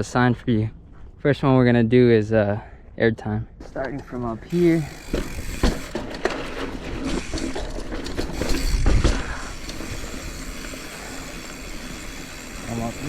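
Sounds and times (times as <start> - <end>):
bike rattling: 3.8 - 13.0
bike tyres rumbling over ground: 4.5 - 13.0
sharp knocks over bumps: 5.1 - 9.4.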